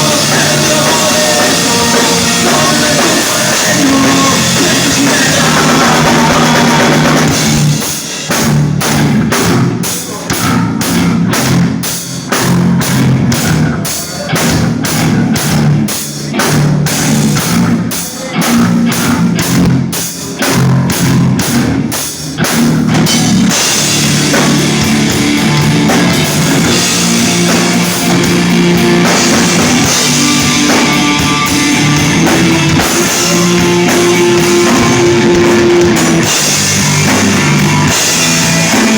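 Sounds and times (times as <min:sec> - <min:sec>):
rock band playing: 0:00.0 - 0:38.9
drum hits: 0:22.4 - 0:38.9.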